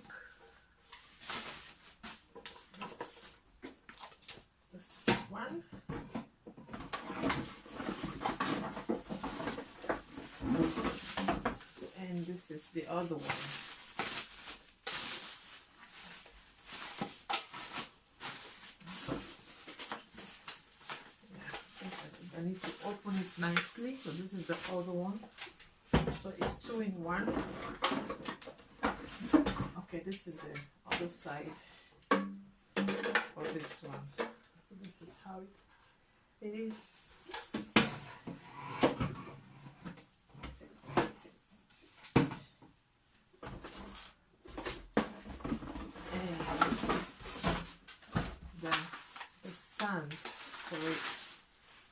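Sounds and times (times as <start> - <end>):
plastic packaging crinkling: 0.9 - 3.3, 13.0 - 25.6, 45.6 - 51.9.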